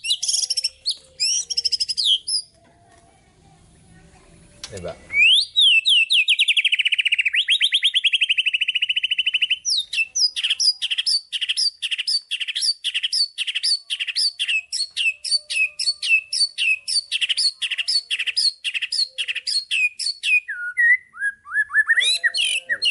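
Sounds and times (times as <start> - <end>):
songbird singing trills and notes: 0.0 - 2.6, 5.1 - 22.9.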